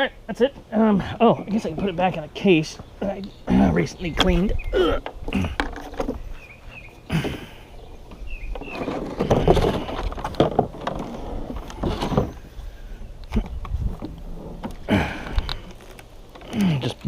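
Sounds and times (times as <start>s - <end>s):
rustling and knocks of handling: 4.1s - 6.6s, 7.2s - 17.0s.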